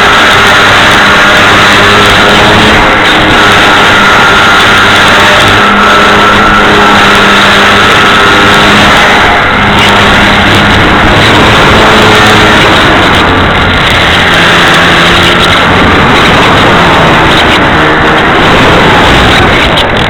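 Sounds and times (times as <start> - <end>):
model plane motor and propeller: 0.0 - 20.0
wind rush on microphone: 0.0 - 20.0.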